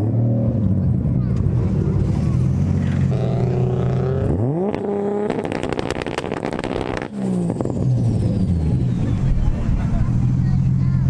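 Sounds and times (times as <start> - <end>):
car engine idling and revving: 0.0 - 11.0
exhaust pops and crackles: 4.7 - 7.8.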